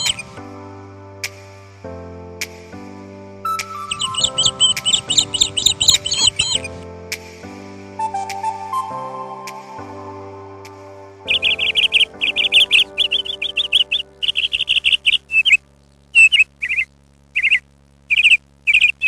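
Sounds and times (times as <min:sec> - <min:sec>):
bird chirping: 0:00.0 - 0:00.3, 0:03.5 - 0:06.8, 0:11.3 - 0:19.0
sustained music tones: 0:00.0 - 0:16.8.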